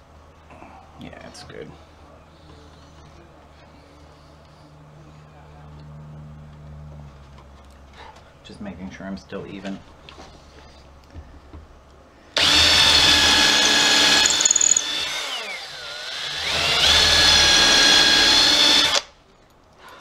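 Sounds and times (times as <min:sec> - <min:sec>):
power drill drilling into wood: 0:12.4 - 0:19.1.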